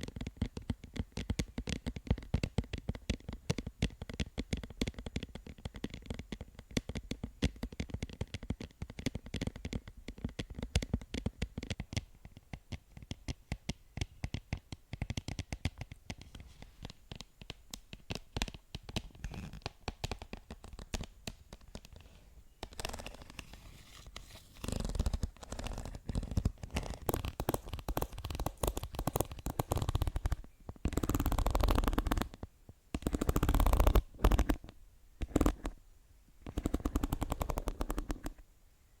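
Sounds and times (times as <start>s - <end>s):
rapid light tapping: 0.0s - 35.8s, 36.4s - 38.4s
scratching and rubbing: 14.0s - 35.8s, 36.4s - 38.4s.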